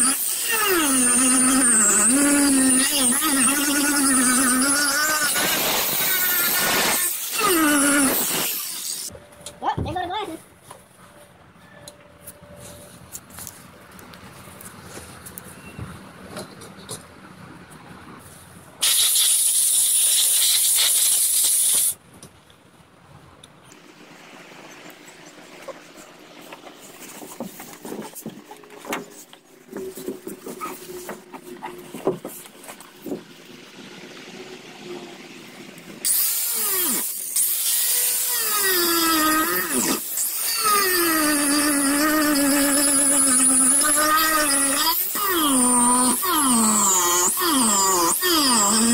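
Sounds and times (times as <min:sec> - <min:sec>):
power grinder whine: 0:00.0 - 0:09.1, 0:36.0 - 0:48.9.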